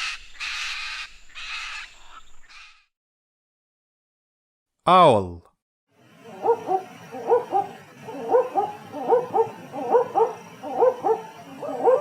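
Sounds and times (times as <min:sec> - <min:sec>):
owl hooting: 0:00.0 - 0:02.8, 0:06.2 - 0:12.0.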